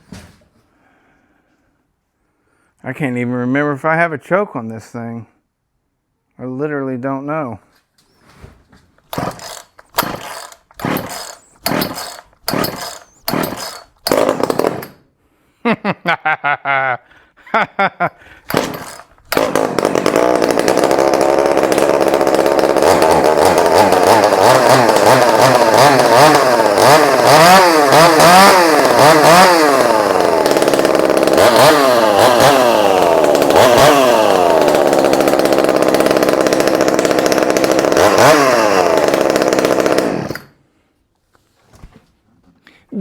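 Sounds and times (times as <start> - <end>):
chainsaw revving: 9.1 - 15.0, 18.5 - 40.6.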